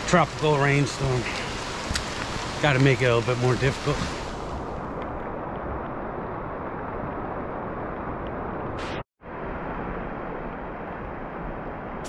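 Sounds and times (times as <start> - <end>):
rushing outdoor hiss: 0.0 - 5.2, 8.8 - 9.8.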